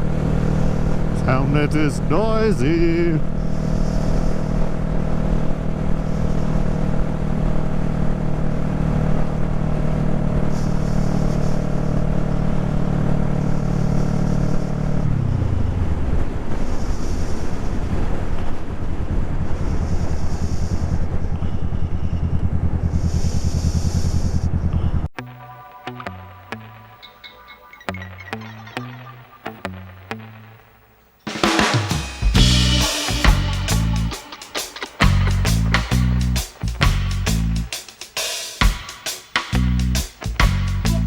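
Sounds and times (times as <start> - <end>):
motorcycle engine running: 0.0 - 17.8, 19.7 - 25.1, 31.3 - 37.8
wind rushing over microphone: 15.0 - 24.8.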